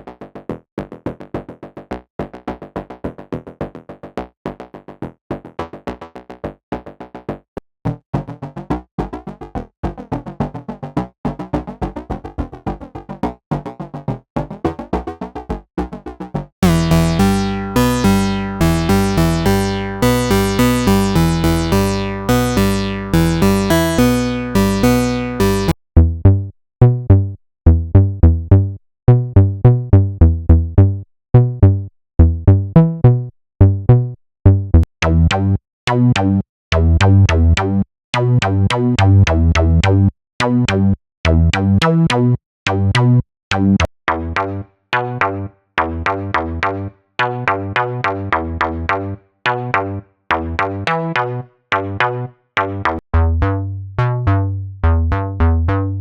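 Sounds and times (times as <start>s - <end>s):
synthesizer riffs: 16.6s - 25.8s.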